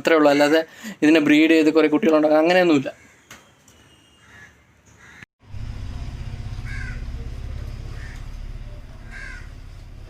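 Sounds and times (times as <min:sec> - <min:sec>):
loud low rumble: 0:05.4 - 0:10.0
bird calling: 0:06.5 - 0:10.0.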